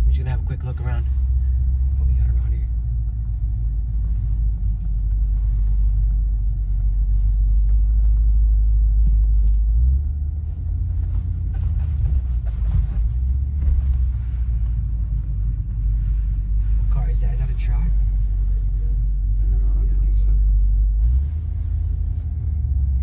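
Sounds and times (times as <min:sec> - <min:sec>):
car engine deep rumble: 0:00.0 - 0:23.0.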